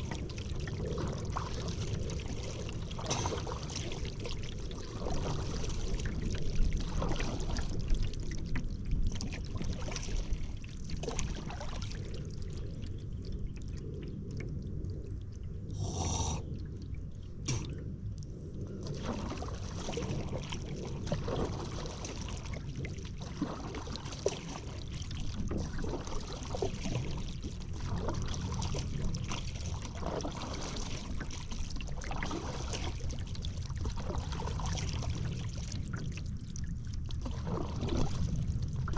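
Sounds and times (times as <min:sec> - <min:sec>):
paddle splashing in water: 0:00.0 - 0:08.4, 0:09.1 - 0:12.0, 0:18.9 - 0:36.1, 0:37.2 - 0:38.9.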